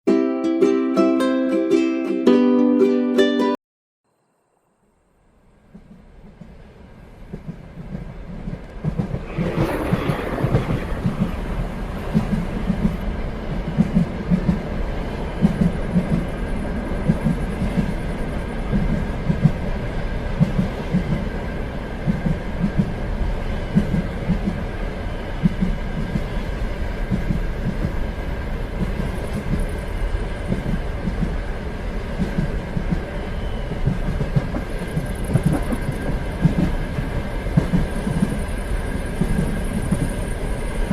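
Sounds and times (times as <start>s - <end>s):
train rumble: 5.4s - 40.9s
train wheels clicking on rails: 5.6s - 40.9s
rush of air: 9.0s - 13.1s.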